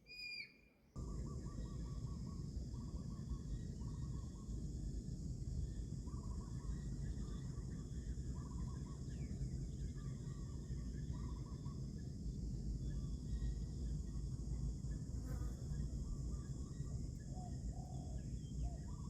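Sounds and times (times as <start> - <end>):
bird trilled call: 0.0 - 2.3
high insect drone: 1.0 - 19.0.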